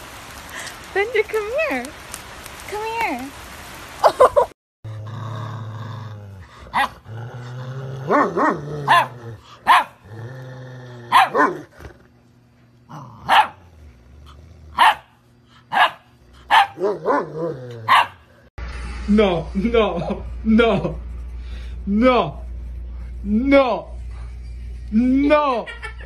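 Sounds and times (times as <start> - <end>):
puppy barking in high yaps: 6.7 - 7.0, 8.1 - 10.0, 11.1 - 11.7, 13.2 - 13.6, 14.8 - 15.1, 15.7 - 17.3, 17.9 - 18.2
low steady rumble: 11.1 - 26.0.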